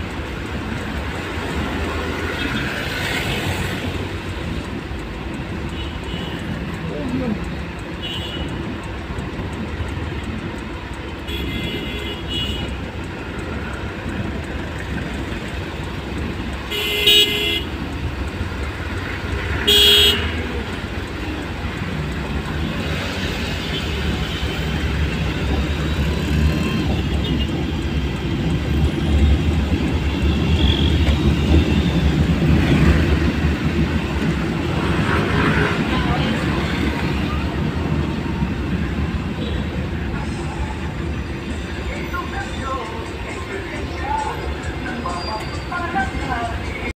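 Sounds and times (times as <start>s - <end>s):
road traffic rumble: 0.0s - 46.9s
car horn blasts: 8.0s - 8.5s, 11.3s - 12.7s, 16.7s - 17.7s, 19.6s - 20.5s.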